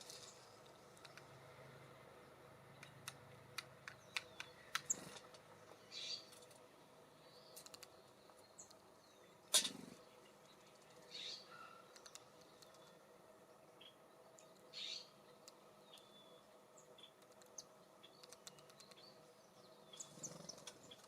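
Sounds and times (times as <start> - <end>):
birds tapping and pecking: 0.0 - 1.4, 2.7 - 6.8, 7.5 - 8.9, 9.5 - 13.0, 16.9 - 19.3, 20.0 - 21.0
faint high bird chirps: 3.9 - 6.4, 7.2 - 13.0, 13.8 - 21.0.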